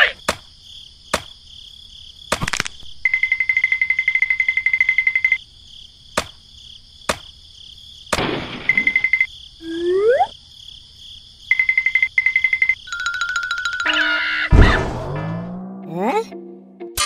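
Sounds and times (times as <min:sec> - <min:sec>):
insect chirring: 0:00.0 - 0:14.1
fast trilling beep: 0:08.8 - 0:10.3.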